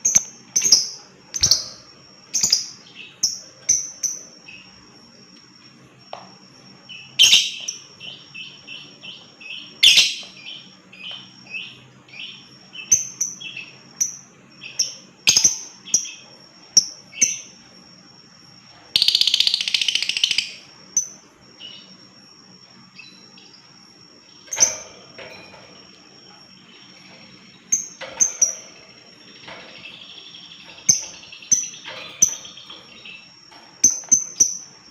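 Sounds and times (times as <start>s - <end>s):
bird shrill chirps and trill: 6.9s - 16.2s, 19.0s - 21.9s.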